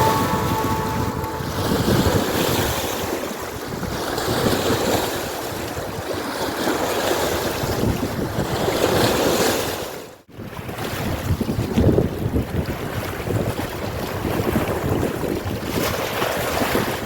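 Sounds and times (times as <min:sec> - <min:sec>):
water noise: 0:00.0 - 0:03.0.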